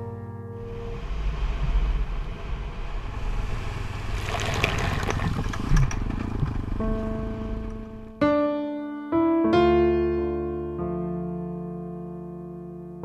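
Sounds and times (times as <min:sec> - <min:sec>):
hiss and clicks: 0:00.6 - 0:08.0
motorcycle engine rumble: 0:00.6 - 0:08.2
wind and road noise: 0:00.6 - 0:08.2.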